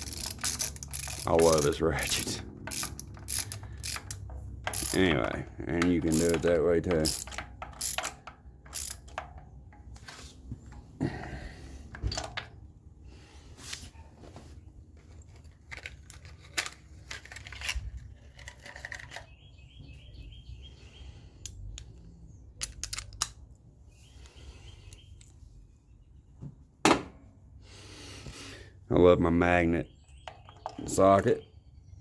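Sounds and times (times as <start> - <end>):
fast ratchet clicking: 0.0 - 5.0, 6.0 - 9.2
metal tools clinking: 0.0 - 9.9, 15.1 - 19.5, 21.4 - 23.7.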